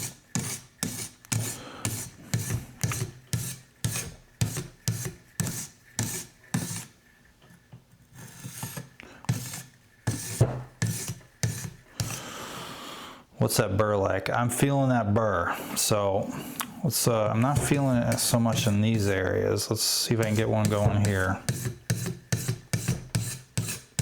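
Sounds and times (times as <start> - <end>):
sharpening stone scraping knife: 0.0 - 6.9, 8.2 - 12.2, 20.2 - 24.0.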